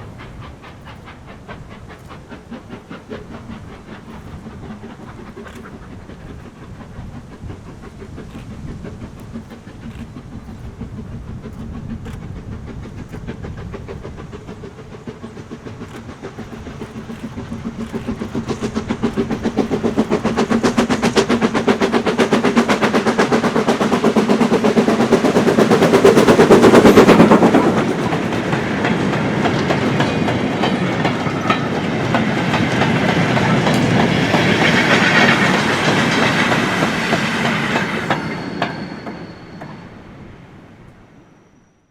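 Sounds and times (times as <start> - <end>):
wagons clickety-clack rolling: 0.0 - 39.8
steam locomotive exhaust beats: 0.0 - 41.6.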